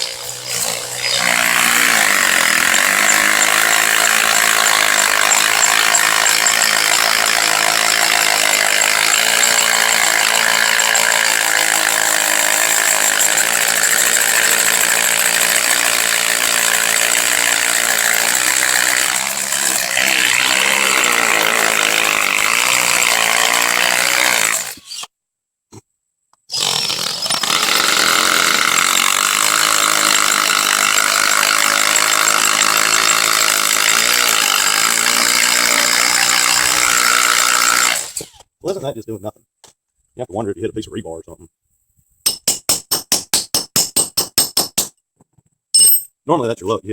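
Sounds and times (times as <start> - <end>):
hammer drill boring into concrete: 0.0 - 25.1, 26.4 - 38.5.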